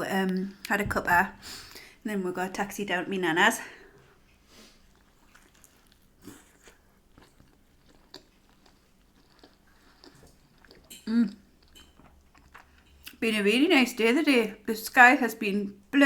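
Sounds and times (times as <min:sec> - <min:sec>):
person chewing food: 0:04.2 - 0:13.2.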